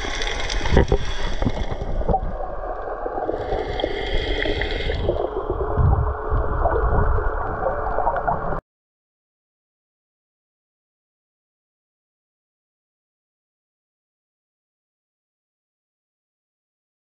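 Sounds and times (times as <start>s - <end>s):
muffled water gurgling underwater: 0.0s - 8.6s.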